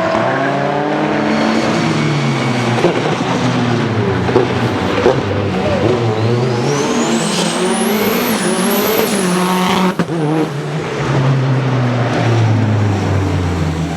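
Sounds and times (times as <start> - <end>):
car engine accelerating hard: 0.0 - 13.9
turbo whine: 1.4 - 10.6.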